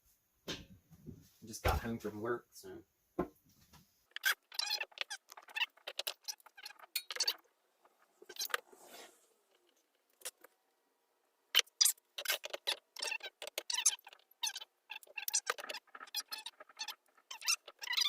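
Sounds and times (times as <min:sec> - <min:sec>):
hands rubbing small parts: 0:11.6 - 0:18.0.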